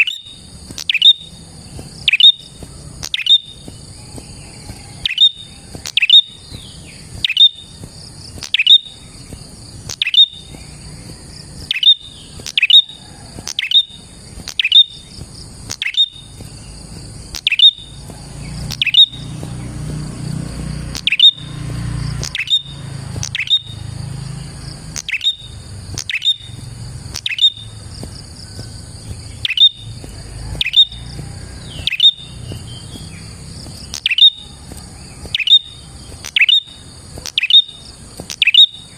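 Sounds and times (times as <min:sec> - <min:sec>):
bird chirping: 0:00.0 - 0:38.9
high-pitched background buzz: 0:00.0 - 0:38.9.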